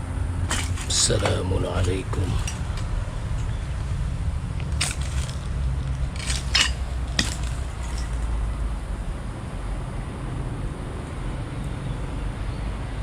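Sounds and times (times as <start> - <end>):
hard objects clicking and scraping: 0.4 - 2.9, 4.6 - 8.3.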